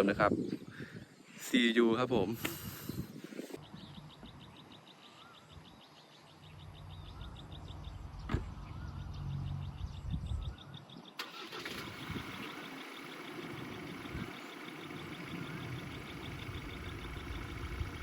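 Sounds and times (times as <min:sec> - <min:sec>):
vehicle engine humming: 0:06.5 - 0:18.0
insects trilling: 0:11.2 - 0:18.0.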